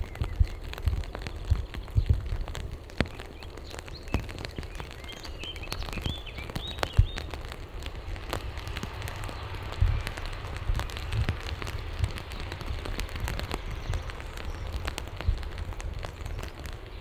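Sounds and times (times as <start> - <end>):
steady rain falling: 0.0 - 17.0
low thuds: 8.2 - 16.8.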